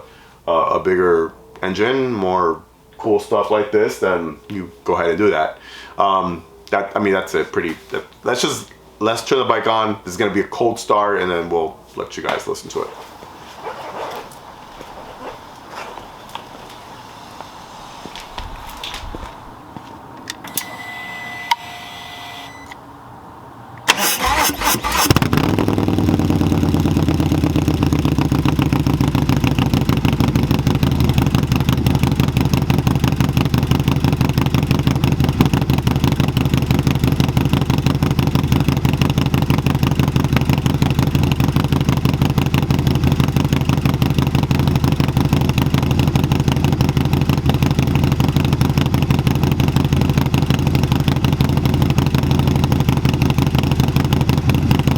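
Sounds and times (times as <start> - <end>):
starter motor cranking: 23.9 - 26.4
motorcycle engine idling: 25.2 - 54.9.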